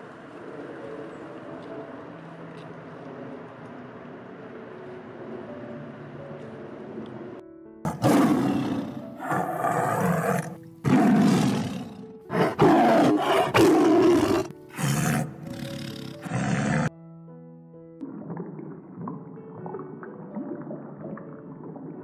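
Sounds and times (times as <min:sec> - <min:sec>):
tiger roaring and snarling: 0:07.9 - 0:16.9.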